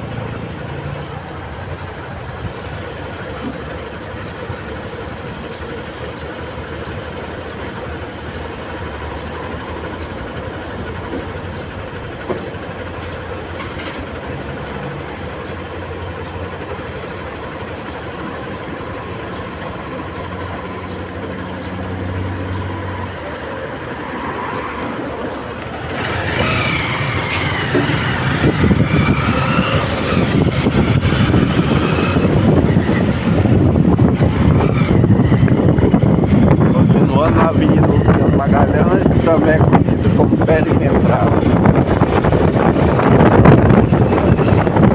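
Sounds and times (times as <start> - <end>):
vehicle engine and road noise: 0.0 - 44.9
wind buffeting microphone: 24.6 - 44.9.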